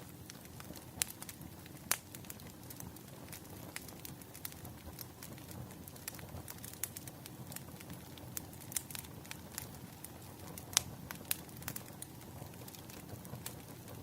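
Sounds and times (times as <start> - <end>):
firewood crackling: 0.0 - 14.0.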